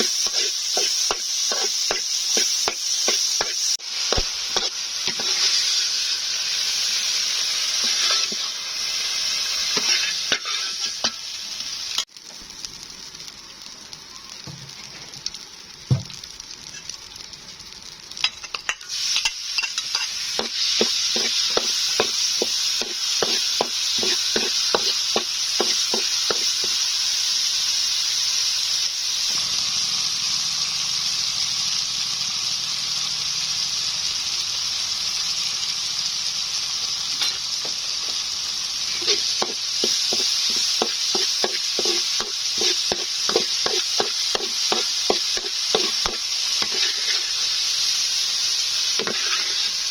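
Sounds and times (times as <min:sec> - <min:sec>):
utensil stirring food: 0:00.0 - 0:05.7, 0:18.5 - 0:26.8, 0:38.9 - 0:47.6, 0:49.0 - 0:49.9
food sizzling in a pan: 0:00.0 - 0:49.9.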